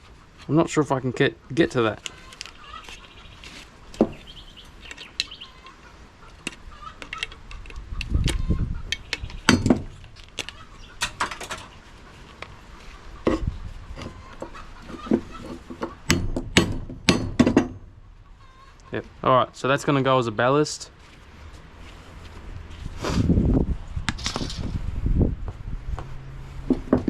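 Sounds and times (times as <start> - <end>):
dull thuds: 15.0 - 18.0.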